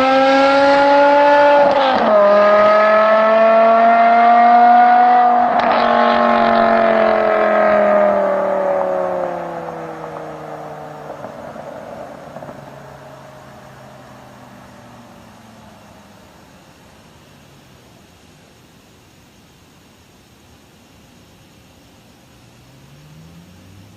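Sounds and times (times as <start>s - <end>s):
car engine note: 0.0s - 17.0s.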